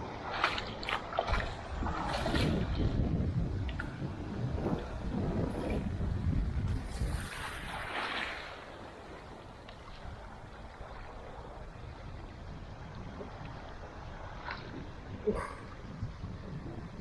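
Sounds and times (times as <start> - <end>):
surf rushing: 0.0 - 9.5
wind and water rushing: 0.0 - 17.0
wind buffeting microphone: 0.0 - 17.0.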